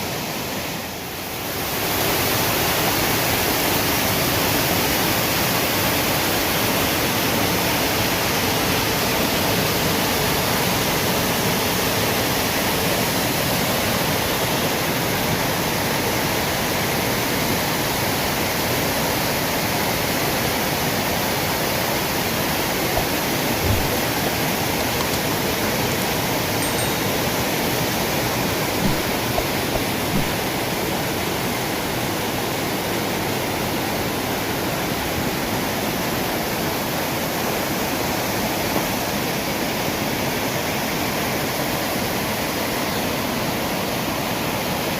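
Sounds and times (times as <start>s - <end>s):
waterfall rushing: 0.0s - 42.5s.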